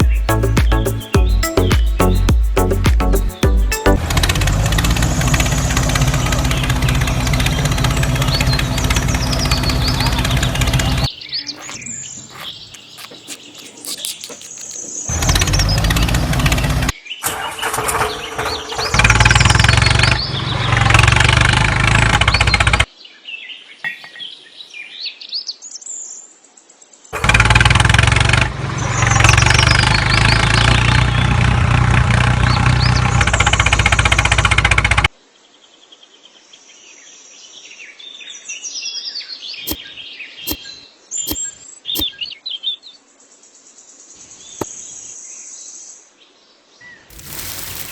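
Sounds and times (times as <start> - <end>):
birds chirping: 0.0 - 4.0, 6.4 - 16.9, 47.0 - 47.9.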